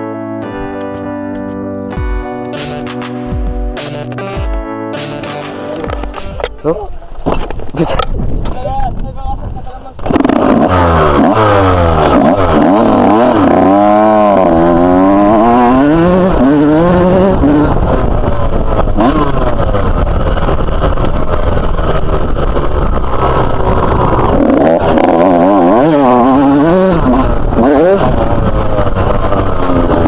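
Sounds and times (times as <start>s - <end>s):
motocross bike engine revving: 9.8s - 30.0s.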